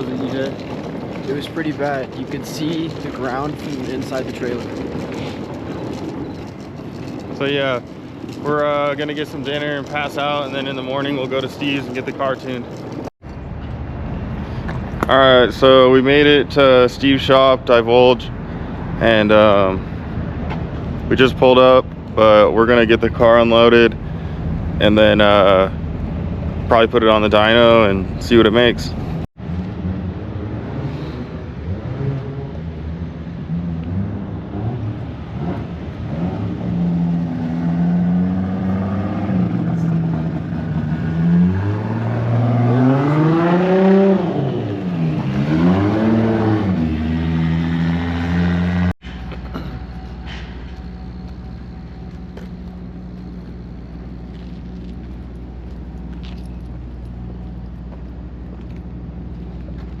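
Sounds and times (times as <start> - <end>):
low engine drone: 0.0 - 60.0
car engine revving: 28.8 - 59.8.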